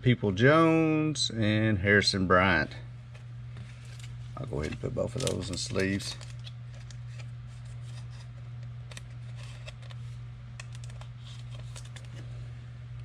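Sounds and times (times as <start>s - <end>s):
steady low hum: 0.0s - 13.0s
cards rustling in plastic sleeves: 3.2s - 12.5s.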